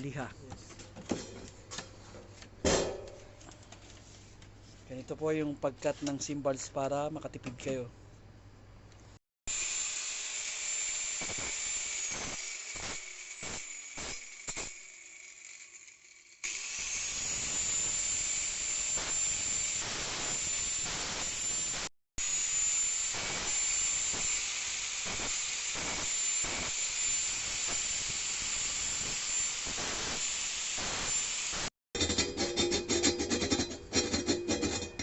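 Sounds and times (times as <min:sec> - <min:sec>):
rotary cutting tool grinding metal: 0:09.5 - 0:34.9.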